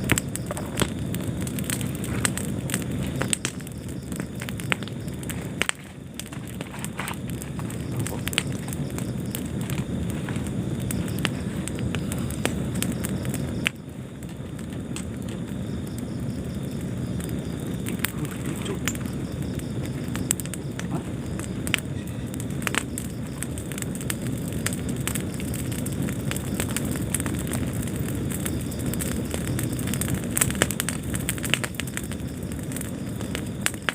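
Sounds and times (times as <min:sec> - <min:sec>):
fire crackling and popping: 0:00.0 - 0:33.9
fire flames rumbling: 0:00.0 - 0:33.9.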